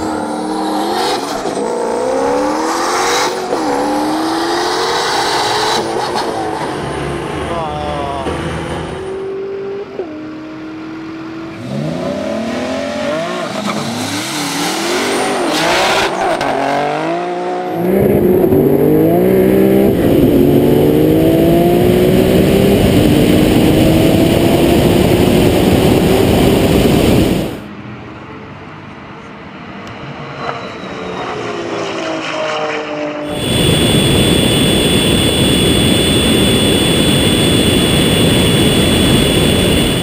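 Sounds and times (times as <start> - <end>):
car engines accelerating hard: 0.0 - 27.6.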